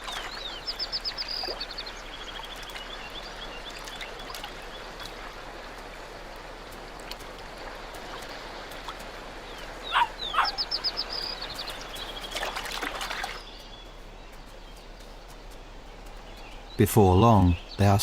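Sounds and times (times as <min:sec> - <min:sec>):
steady outdoor hiss: 0:00.0 - 0:18.0
wolf pups yelping: 0:09.9 - 0:10.8.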